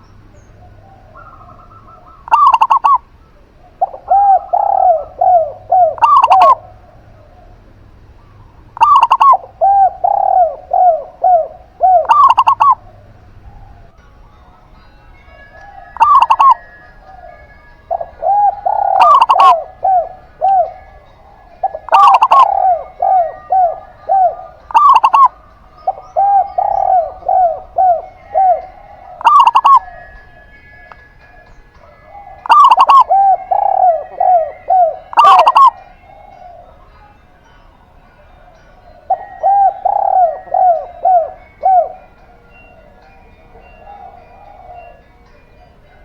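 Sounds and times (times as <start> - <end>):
doves cooing: 0.0 - 14.0, 15.2 - 46.0.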